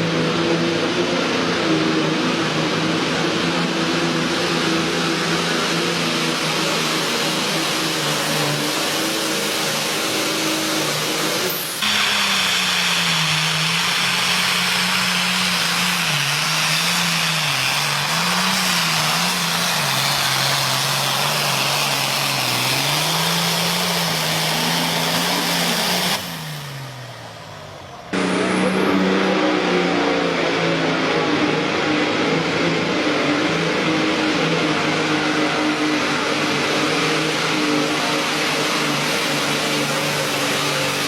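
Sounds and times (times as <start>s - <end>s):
tractor engine under load: 0.0s - 41.0s
loud rushing noise: 22.8s - 41.0s.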